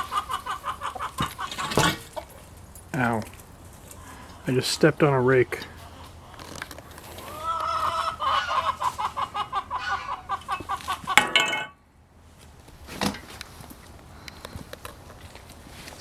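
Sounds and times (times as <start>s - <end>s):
rooster calling and clucking: 0.0s - 2.3s, 3.9s - 11.7s.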